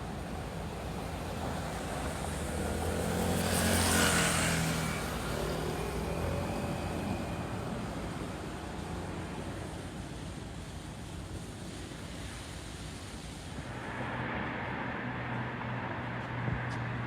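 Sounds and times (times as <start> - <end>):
car driving past: 13.6 - 17.0.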